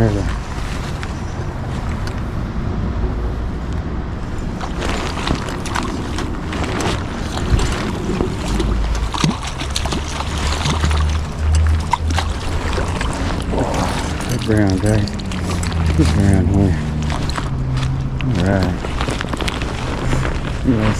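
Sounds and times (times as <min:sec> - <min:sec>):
wind buffeting microphone: 0:00.0 - 0:10.0, 0:10.6 - 0:20.9
river water rushing: 0:04.2 - 0:20.6.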